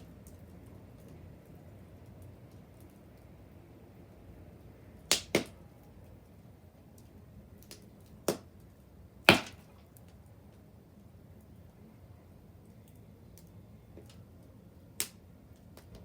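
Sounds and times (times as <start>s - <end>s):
wood fire crackling: 0.0s - 16.0s
burning wood popping: 5.0s - 5.6s, 6.9s - 10.2s, 12.6s - 16.0s.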